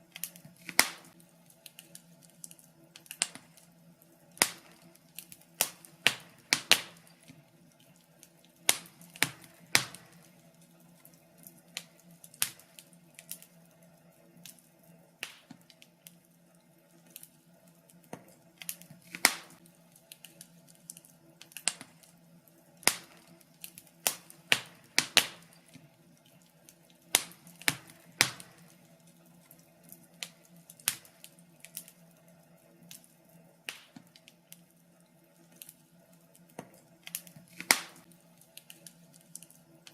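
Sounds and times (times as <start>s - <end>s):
faint steady hum: 0.0s - 39.9s
wood fire crackling: 0.0s - 39.9s.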